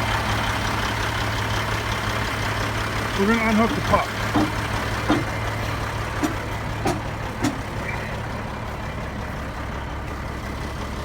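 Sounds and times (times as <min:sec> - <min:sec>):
diesel engine idling: 0:00.0 - 0:11.0
short metallic knocks: 0:03.8 - 0:05.4, 0:06.2 - 0:07.8.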